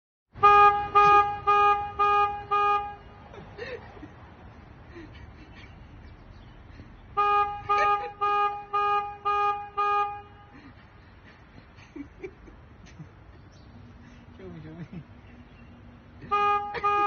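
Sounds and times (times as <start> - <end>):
horn tooting: 0.4 - 3.3, 7.1 - 10.8, 16.2 - 17.0.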